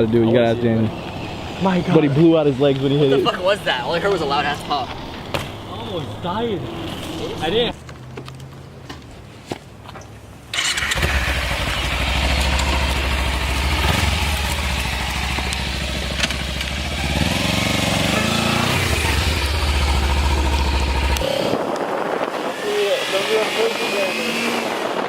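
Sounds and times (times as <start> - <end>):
motorcycle engine starting: 10.5 - 25.0
motorcycle engine idling: 10.6 - 21.3.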